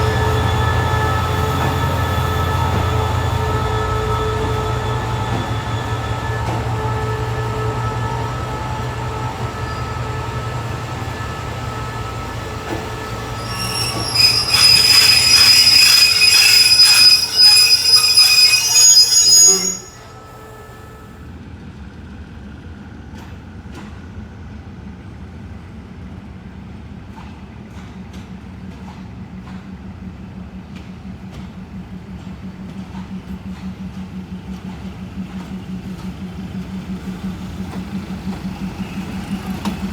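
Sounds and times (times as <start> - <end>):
wheel flange squeal: 0.0 - 21.1
train engine hum: 0.0 - 39.9
wheels clacking over rails: 1.5 - 18.8, 32.7 - 39.9.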